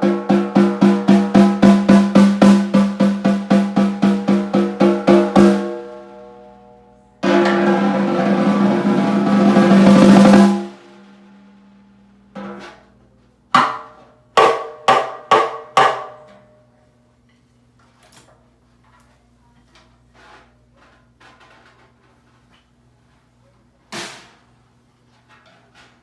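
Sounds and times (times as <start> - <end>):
snare drum strokes and roll: 0.0 - 6.0, 7.2 - 11.6.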